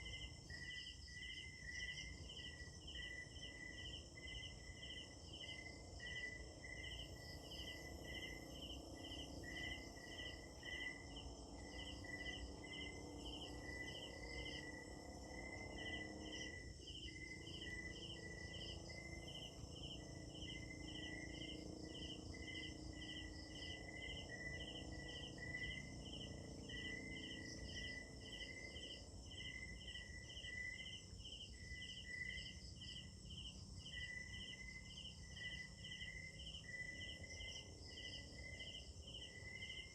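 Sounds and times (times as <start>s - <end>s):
crickets chirping: 0.0s - 39.9s
high fast-pulsing insect calls: 0.0s - 39.9s.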